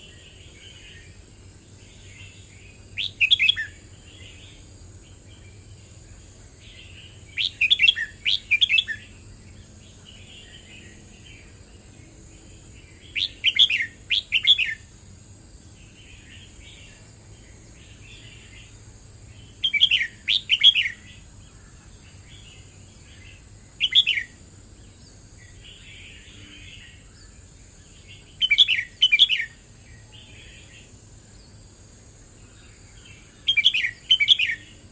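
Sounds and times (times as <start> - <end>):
soft bird chirping: 0.0 - 14.9, 15.7 - 34.9
bird whistled song bursts: 3.0 - 3.8, 7.3 - 9.0, 13.1 - 14.8, 19.6 - 21.0, 23.8 - 24.4, 28.4 - 29.6, 33.4 - 34.7.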